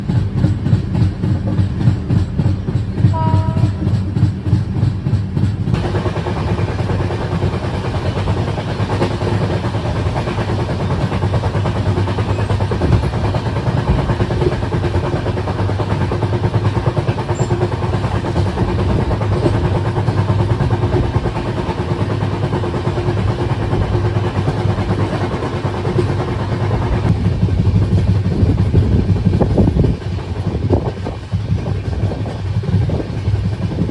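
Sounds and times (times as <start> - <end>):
train coaches rumbling: 0.0 - 33.9
wheel clatter: 4.2 - 27.2.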